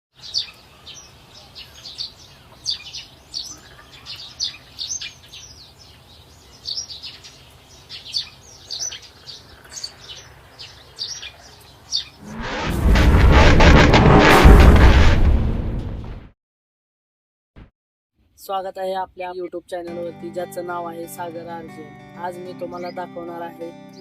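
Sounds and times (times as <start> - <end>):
small birds chirping: 0.2 - 12.2.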